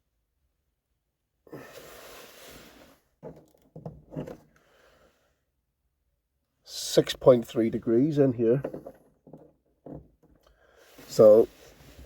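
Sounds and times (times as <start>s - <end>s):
person breathing: 1.5s - 3.1s, 4.5s - 5.5s, 10.5s - 12.0s.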